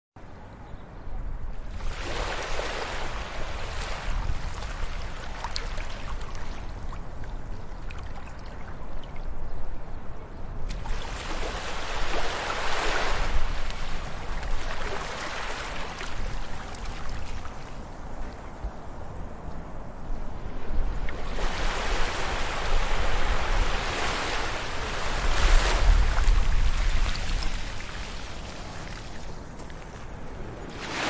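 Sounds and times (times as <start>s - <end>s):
low rumble of sea: 0.2s - 31.0s
sea waves breaking on beach: 1.7s - 7.1s, 10.7s - 18.0s, 20.4s - 29.6s, 30.4s - 31.0s.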